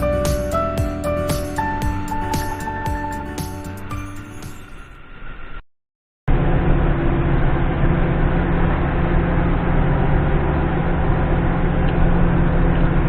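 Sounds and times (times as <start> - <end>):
truck diesel engine running: 0.0 - 4.6
music: 0.0 - 5.0.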